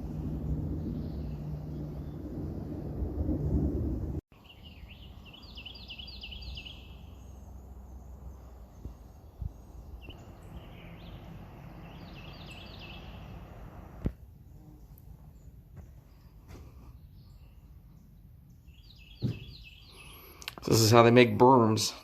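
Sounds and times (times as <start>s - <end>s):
songbird chirping: 0.0s - 2.8s, 4.3s - 22.0s
loud low noise: 0.0s - 4.2s
low outdoor rumble: 0.0s - 4.2s, 6.9s - 19.1s
small knocks: 19.2s - 19.6s.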